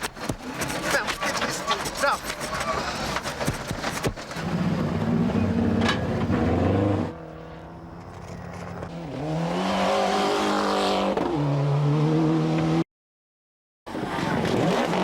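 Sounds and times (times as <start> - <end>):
rally car engine accelerating: 4.3 - 7.8, 8.8 - 12.8.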